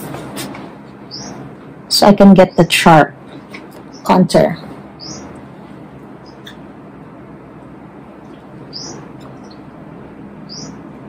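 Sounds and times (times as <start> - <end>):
low room hum: 0.0 - 11.0
small bird chirping: 1.1 - 1.4, 3.8 - 4.4, 5.0 - 5.4, 6.2 - 6.6, 8.3 - 9.7, 10.4 - 10.8.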